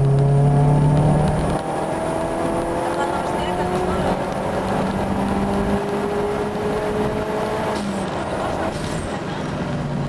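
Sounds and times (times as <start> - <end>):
car engine accelerating: 0.0 - 10.0
road noise: 0.0 - 10.0.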